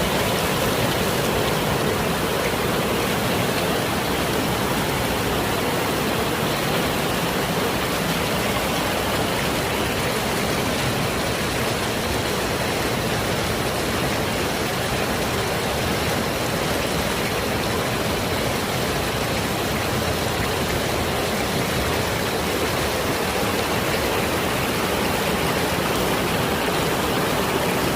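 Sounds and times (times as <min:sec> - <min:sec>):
waterfall rushing: 0:00.0 - 0:27.9.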